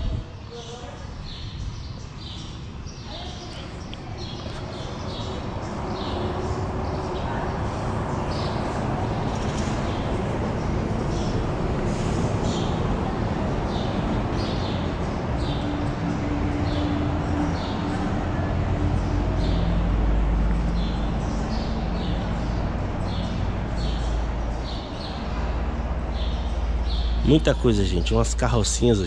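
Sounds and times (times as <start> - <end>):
bird chirping: 0.0 - 12.8, 18.7 - 29.0.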